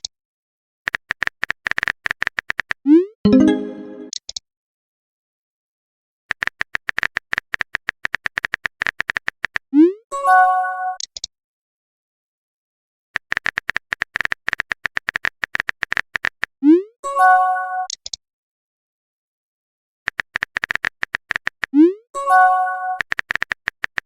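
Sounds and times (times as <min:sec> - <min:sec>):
keyboard typing clicks: 0:20.1 - 0:21.7, 0:22.9 - 0:24.0.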